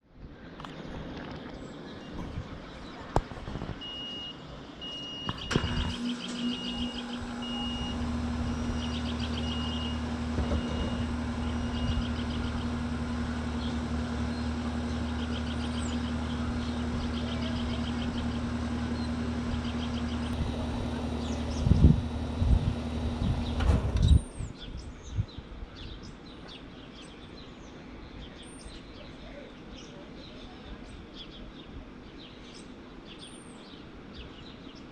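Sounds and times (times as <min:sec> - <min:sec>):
heat pump click: 0:05.2 - 0:24.2
compressor humming: 0:05.3 - 0:24.5
condenser fan spinning: 0:05.5 - 0:24.4.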